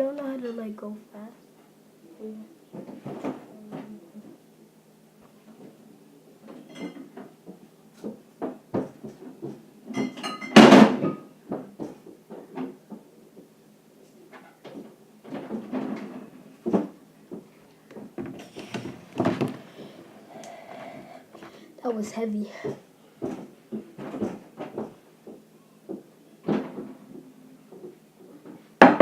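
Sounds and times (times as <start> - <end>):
knocks clunks and rattles: 14.7 - 19.7.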